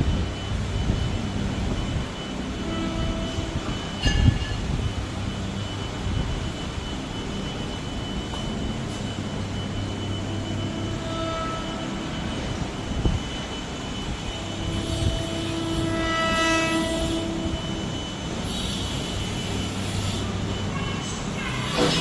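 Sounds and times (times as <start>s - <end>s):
train rumbling: 0.0s - 22.0s
train horn blasts: 2.5s - 4.6s, 10.9s - 12.1s, 14.7s - 22.0s.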